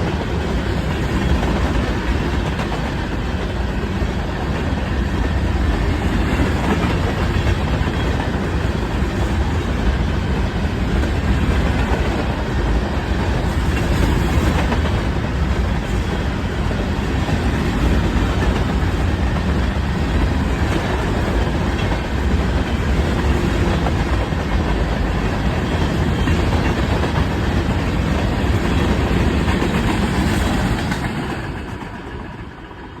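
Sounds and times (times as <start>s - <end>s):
freight train wheels clattering: 0.0s - 33.0s.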